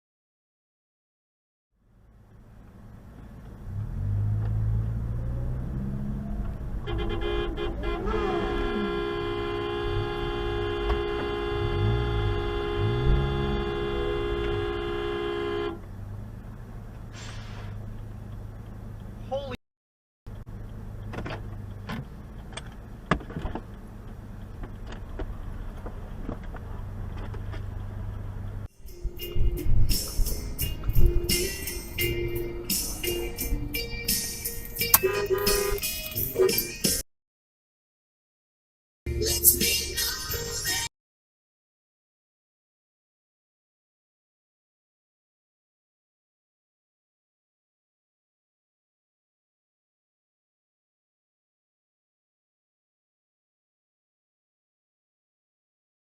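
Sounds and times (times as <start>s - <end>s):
vehicle engine and road noise: 1.7s - 19.6s, 20.3s - 37.0s, 39.1s - 40.9s
car horn held: 6.8s - 15.8s, 34.8s - 36.8s.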